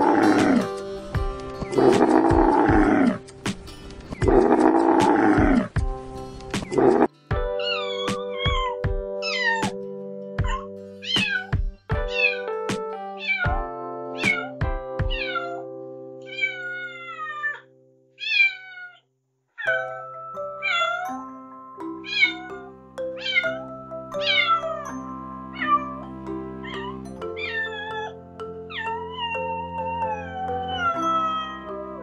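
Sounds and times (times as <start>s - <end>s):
background music with low beats: 0.0s - 7.6s, 8.4s - 15.2s
kitten meowing: 7.6s - 9.8s, 10.4s - 12.5s, 13.2s - 13.6s, 14.2s - 15.6s, 16.3s - 17.6s, 18.2s - 19.0s, 22.1s - 23.6s, 26.6s - 32.0s.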